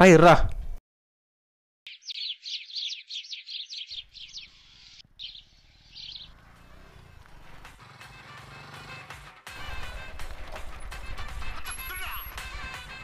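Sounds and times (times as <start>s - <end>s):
bird chirping: 1.9s - 7.7s.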